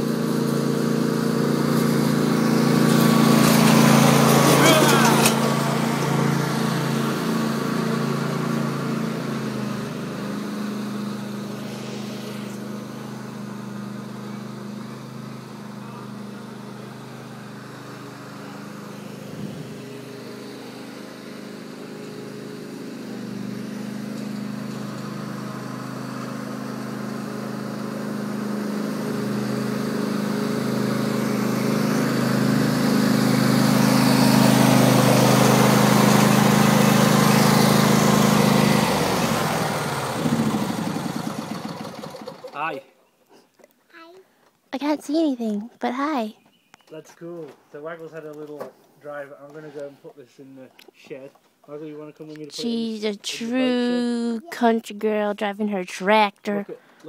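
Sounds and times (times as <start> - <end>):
small tractor engine running: 0.0 - 42.8.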